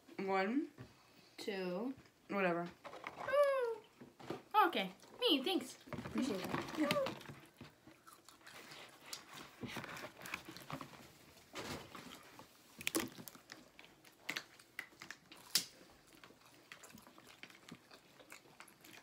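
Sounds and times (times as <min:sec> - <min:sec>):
people chewing and biting: 0:06.8 - 0:19.0.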